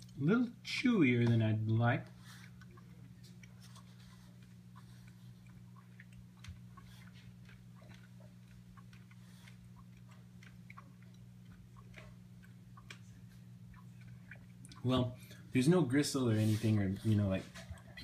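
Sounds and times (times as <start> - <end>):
low hum: 0.0 - 18.0
soft chewing mouth clicks: 2.1 - 15.5.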